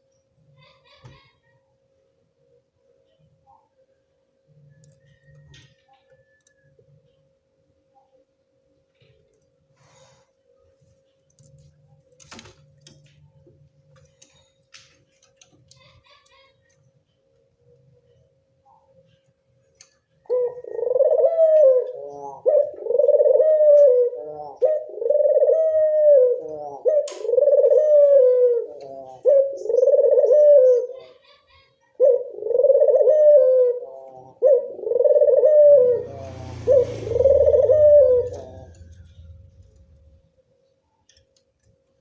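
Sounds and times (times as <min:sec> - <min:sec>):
dove cooing: 0:20.2 - 0:31.3, 0:31.9 - 0:39.8
low rumble: 0:36.0 - 0:40.4.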